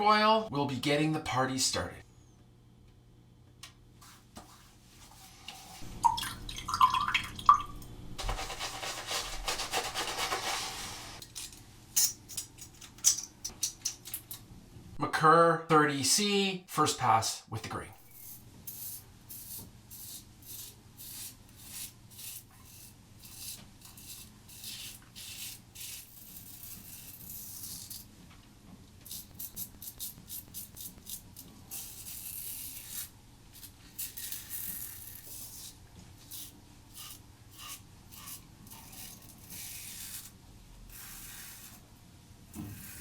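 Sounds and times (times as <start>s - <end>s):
razor scraping stubble: 18.1s - 28.1s, 29.0s - 41.9s, 42.5s - 43.0s.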